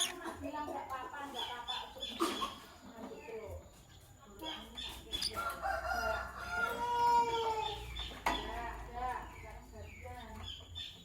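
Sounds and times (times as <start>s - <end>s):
birds chirping: 0.0s - 0.6s, 1.2s - 6.4s.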